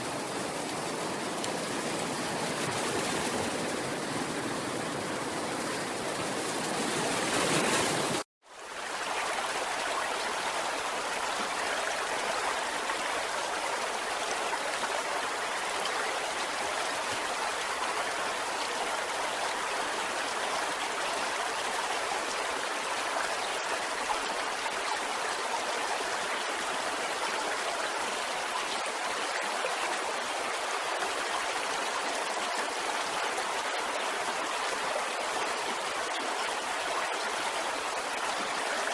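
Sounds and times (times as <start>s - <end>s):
water rushing: 0.0s - 8.3s, 8.9s - 38.9s.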